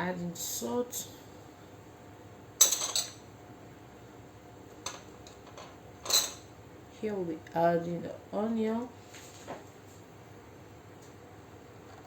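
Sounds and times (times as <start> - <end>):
dishes clattering: 2.6 - 3.2, 4.8 - 6.5.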